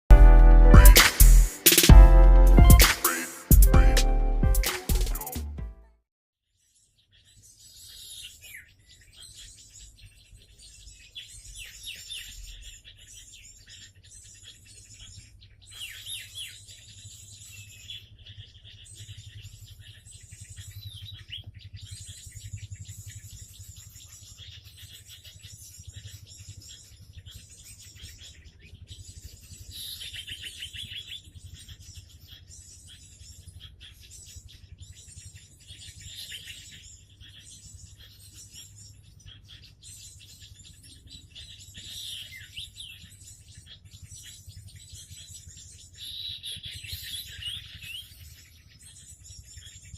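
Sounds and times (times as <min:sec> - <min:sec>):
songbirds chirping: 0:06.5 - 0:49.9.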